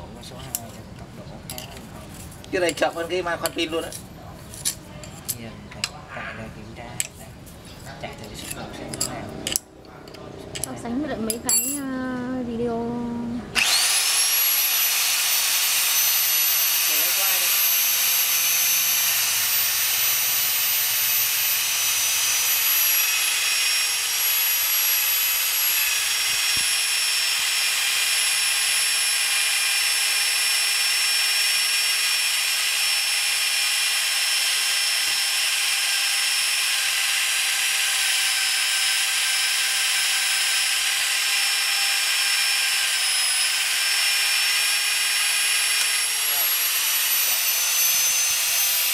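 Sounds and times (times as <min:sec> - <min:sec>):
magnetic drill motor whining: 0:13.5 - 0:48.9.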